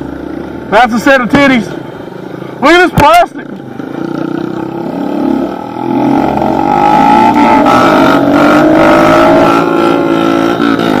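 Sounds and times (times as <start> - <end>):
pit bike engine revving: 3.7 - 11.0.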